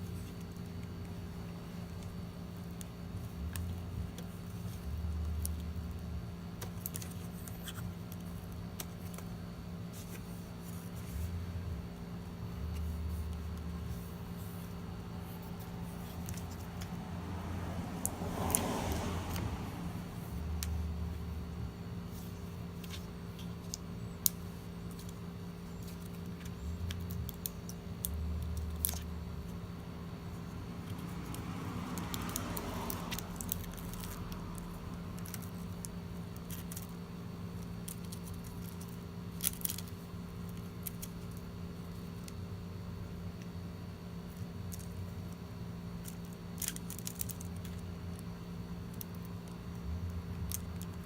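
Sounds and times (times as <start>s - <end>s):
steady low hum: 0.0s - 51.0s
small parts and tools clicking: 32.0s - 37.0s, 46.0s - 48.2s, 48.9s - 51.0s.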